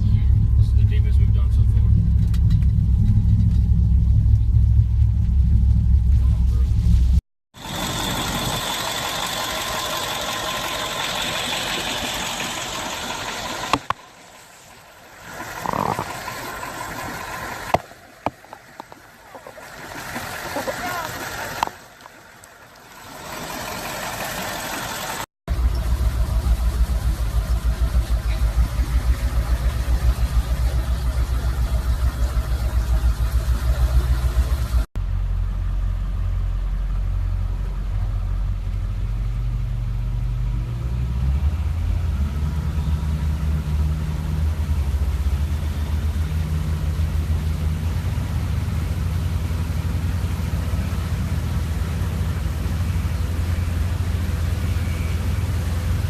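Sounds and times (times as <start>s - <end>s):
engine pitch stepping up and down: 0.0s - 14.2s, 23.0s - 34.9s
low pulsing engine rumble: 0.0s - 56.0s.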